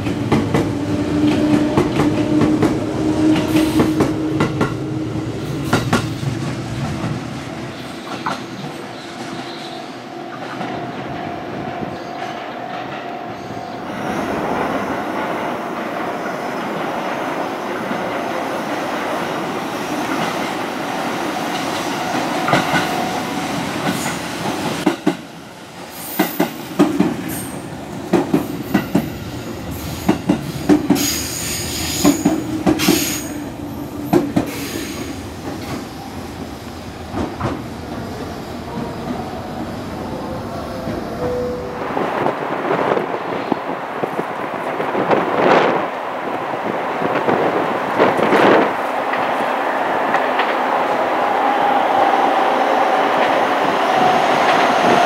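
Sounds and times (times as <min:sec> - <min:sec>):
passenger train running: 0:00.0 - 0:55.0.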